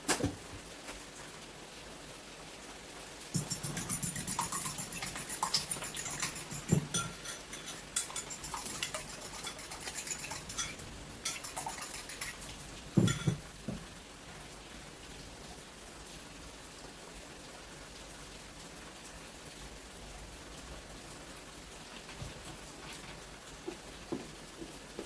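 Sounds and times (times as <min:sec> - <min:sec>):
kitchen utensils and dishes clinking: 0:03.3 - 0:13.8.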